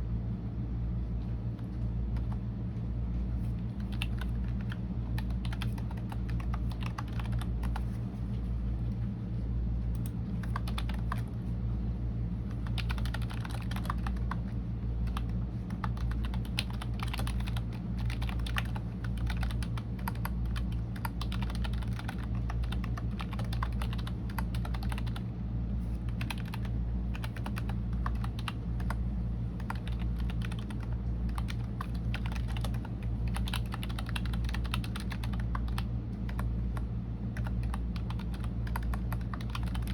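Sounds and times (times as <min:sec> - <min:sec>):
steady low hum: 0:00.0 - 0:39.9
computer keyboard typing: 0:03.7 - 0:08.0, 0:10.0 - 0:11.4, 0:12.5 - 0:25.2, 0:26.0 - 0:29.0, 0:29.6 - 0:39.9.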